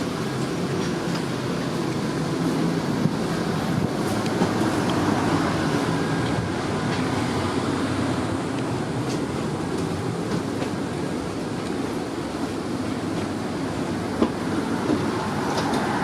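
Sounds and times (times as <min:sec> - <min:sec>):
tram wheels rumbling on rail: 0:00.0 - 0:16.0.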